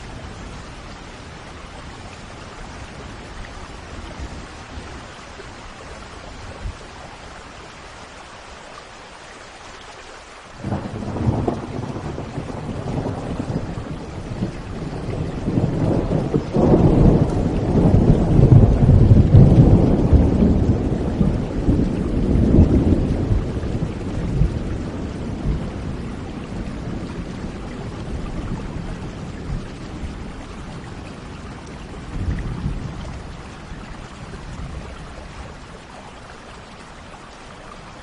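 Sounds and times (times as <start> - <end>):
steady rain: 0.0 - 38.0
thunder rumbling: 10.6 - 35.6.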